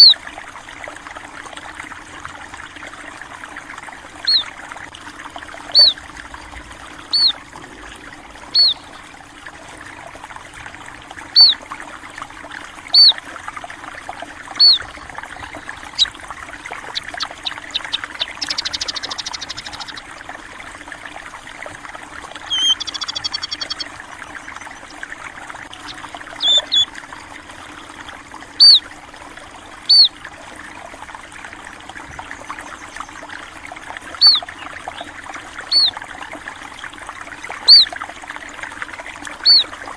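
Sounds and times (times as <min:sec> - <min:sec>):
trickle of flowing water: 0:00.0 - 0:39.9
buzzy bird trill: 0:04.2 - 0:04.5, 0:05.7 - 0:06.0, 0:07.0 - 0:07.4, 0:08.5 - 0:09.0, 0:11.4 - 0:11.6, 0:12.9 - 0:13.2, 0:14.6 - 0:20.1, 0:22.4 - 0:23.9, 0:25.8 - 0:26.9, 0:28.6 - 0:28.8, 0:29.9 - 0:30.1, 0:34.2 - 0:34.6, 0:35.7 - 0:36.0, 0:37.7 - 0:37.9, 0:39.4 - 0:39.7
small birds chirping: 0:04.2 - 0:04.5, 0:05.6 - 0:06.0, 0:06.9 - 0:07.4, 0:08.4 - 0:09.1, 0:11.3 - 0:11.6, 0:12.9 - 0:13.2, 0:14.6 - 0:20.1, 0:22.4 - 0:24.0, 0:25.8 - 0:26.9, 0:28.6 - 0:28.9, 0:29.9 - 0:30.1, 0:34.2 - 0:35.1, 0:35.7 - 0:36.0, 0:37.6 - 0:38.0, 0:39.4 - 0:39.7.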